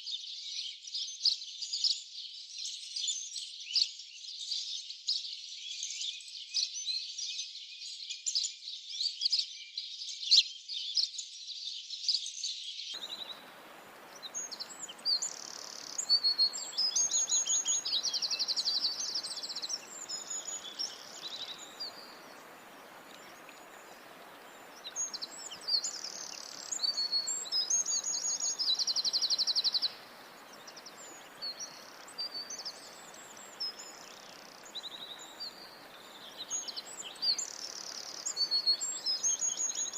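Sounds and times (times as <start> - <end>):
small birds chirping: 12.9 - 39.9
birds singing with trills: 13.0 - 39.9
steady background hiss: 13.0 - 39.9.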